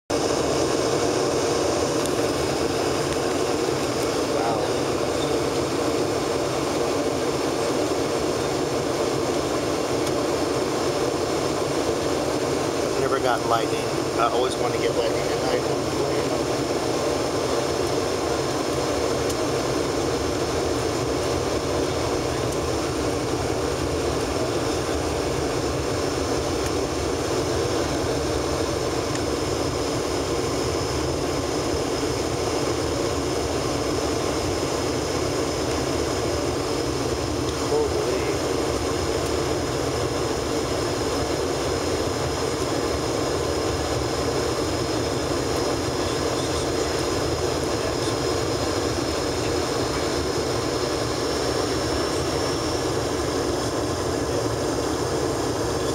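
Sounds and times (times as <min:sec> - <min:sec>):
jet engines droning: 0:00.1 - 0:55.9
faint high whine: 0:00.2 - 0:06.3.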